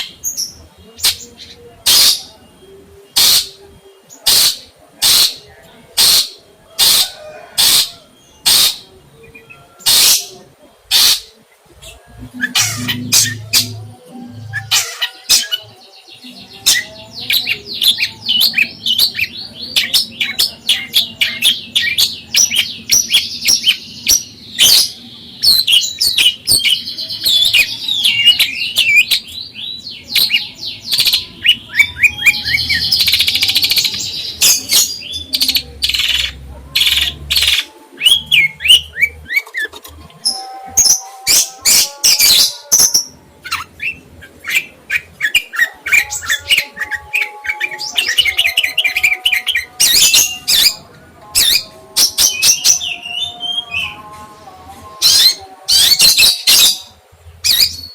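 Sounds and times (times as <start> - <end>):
songbird chirping and trilling: 0.0 - 57.9.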